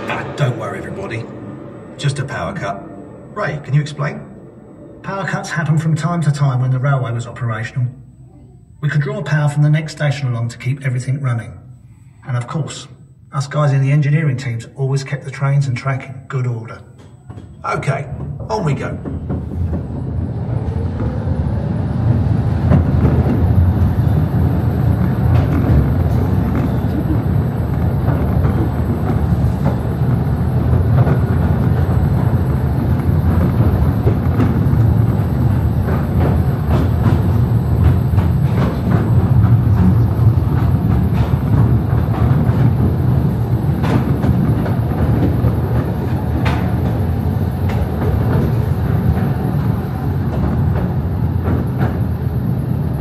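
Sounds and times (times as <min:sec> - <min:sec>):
train wheels rumbling on rails: 0:00.0 - 0:08.2, 0:13.4 - 0:53.0
clicks and clacks: 0:22.6 - 0:52.3.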